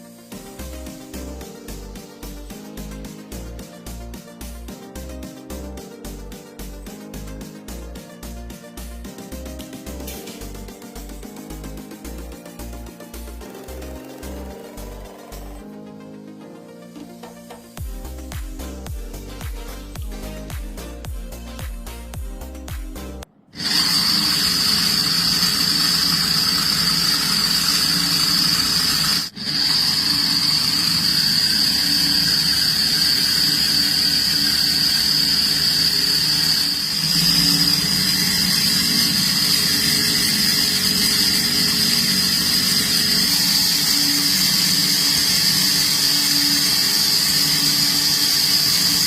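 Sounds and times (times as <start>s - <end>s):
electric motors high-pitched whine: 10.1s - 15.7s, 23.6s - 49.0s.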